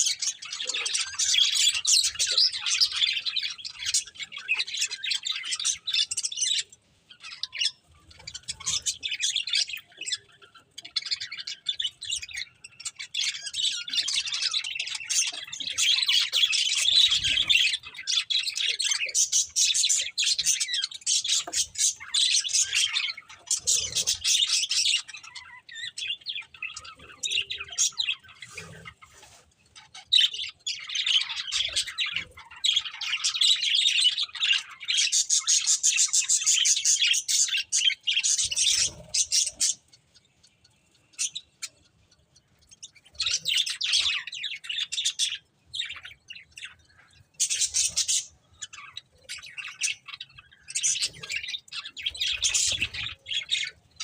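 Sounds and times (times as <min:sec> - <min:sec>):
budgerigars chirping and chattering: 0:00.0 - 0:54.0.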